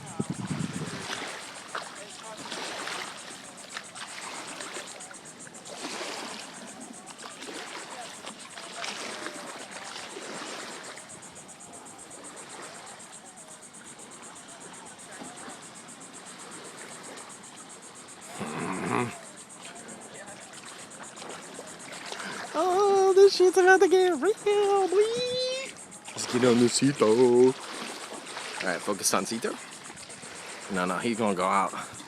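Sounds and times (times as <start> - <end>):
distant indistinct voices: 0.0 - 32.0
water noise: 0.0 - 32.0
louder voice: 22.5 - 25.8.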